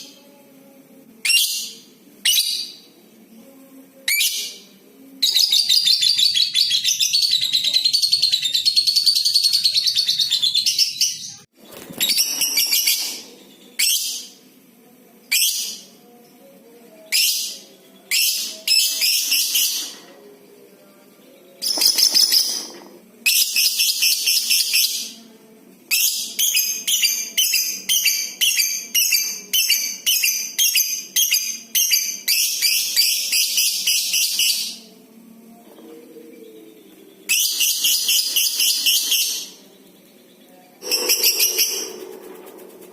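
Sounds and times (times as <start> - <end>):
lovebird chattering trills: 40.8 - 42.6.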